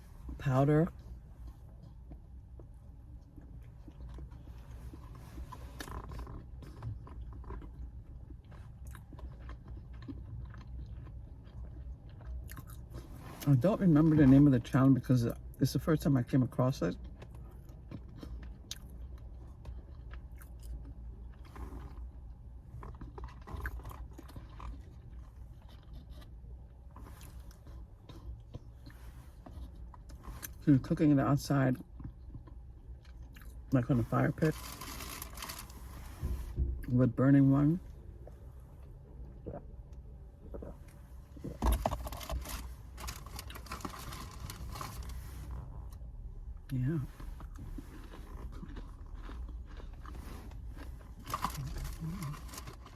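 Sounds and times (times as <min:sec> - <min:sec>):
person chewing food: 0:01.0 - 0:13.5, 0:16.9 - 0:30.6, 0:31.8 - 0:33.8, 0:37.9 - 0:52.9
packaging rustling and crinkling: 0:34.4 - 0:35.8, 0:41.6 - 0:45.2, 0:51.2 - 0:52.9.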